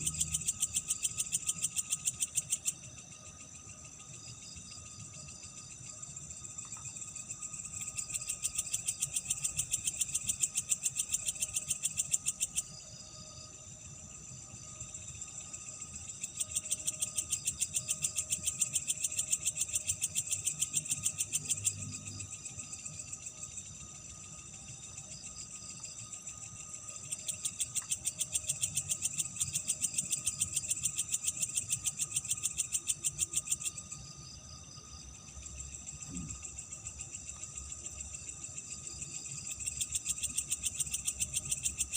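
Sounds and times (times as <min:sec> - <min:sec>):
insect calls with thin tone: 0:00.0 - 0:41.9
insects trilling in rapid pulses: 0:00.0 - 0:41.9.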